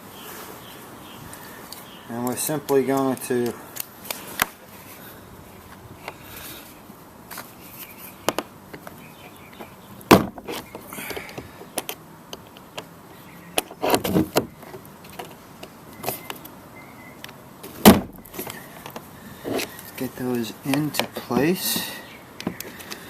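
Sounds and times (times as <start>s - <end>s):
handling clicks and knocks: 8.2s - 12.9s, 13.5s - 16.6s, 17.2s - 23.0s.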